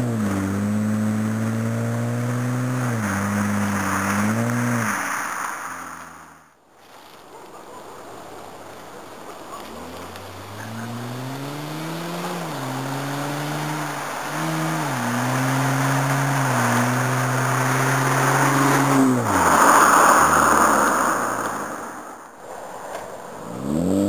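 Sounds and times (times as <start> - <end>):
car engine accelerating: 0.0 - 6.5, 9.5 - 22.1, 23.4 - 24.0
loud rush of noise: 3.2 - 6.5.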